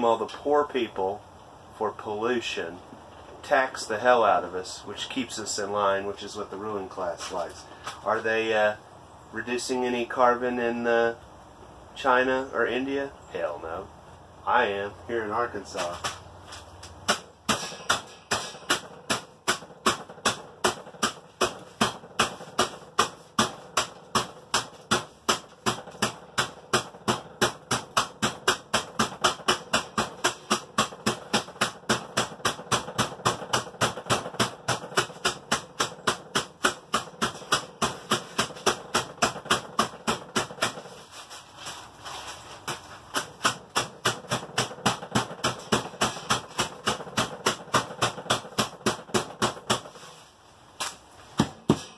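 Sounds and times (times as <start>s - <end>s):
mallet pounding coffee beans in bag: 17.1s - 41.1s, 42.6s - 50.0s.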